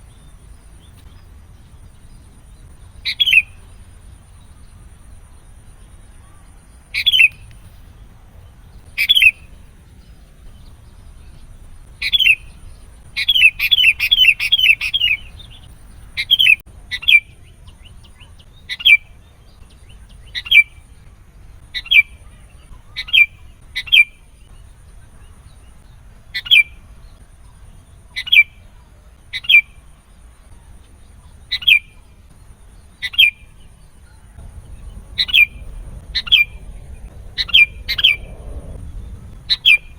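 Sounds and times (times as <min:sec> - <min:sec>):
bird calling sharp notes: 0:34.4 - 0:38.8, 0:39.4 - 0:39.9.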